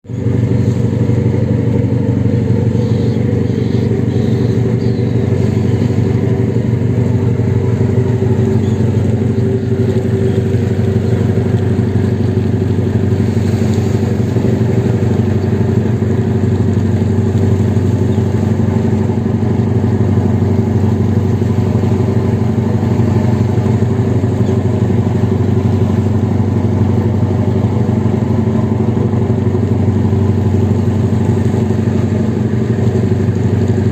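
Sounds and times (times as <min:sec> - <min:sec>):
engine droning steadily: 0:00.0 - 0:33.9.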